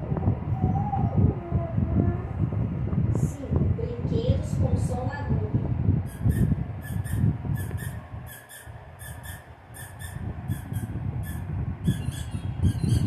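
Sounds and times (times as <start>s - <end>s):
low rumbling noise: 0.0s - 13.0s
squeaky dog toys squeaking: 6.1s - 13.0s.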